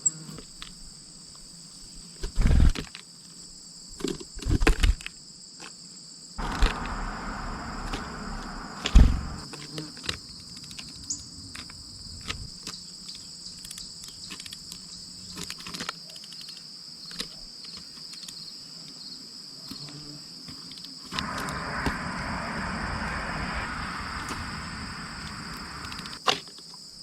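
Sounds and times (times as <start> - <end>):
crickets trilling: 0.0 - 27.0
loud low thump: 6.4 - 9.4.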